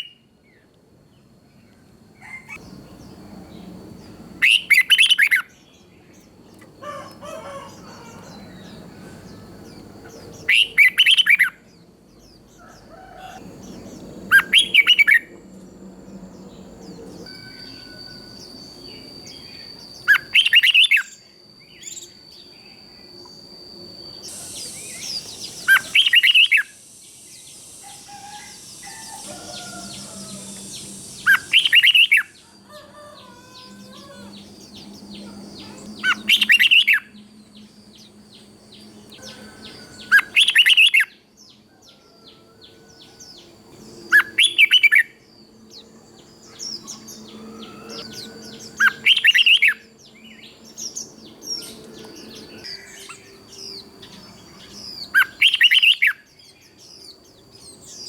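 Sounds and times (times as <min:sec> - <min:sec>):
bird whistled song: 0:00.0 - 0:00.6, 0:02.2 - 0:12.5, 0:13.2 - 0:15.4, 0:16.1 - 0:58.0
faint bird chirping: 0:00.0 - 0:58.0.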